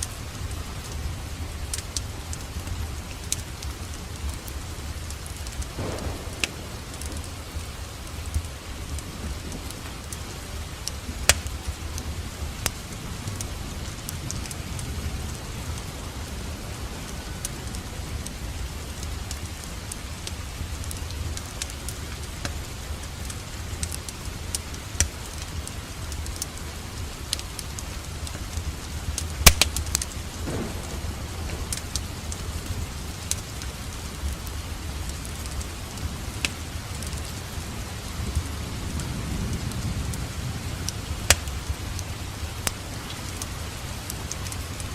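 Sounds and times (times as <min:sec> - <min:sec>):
fireplace crackling and popping: 0:00.0 - 0:44.9
steady rain: 0:00.0 - 0:44.9
low rumble: 0:05.8 - 0:09.7.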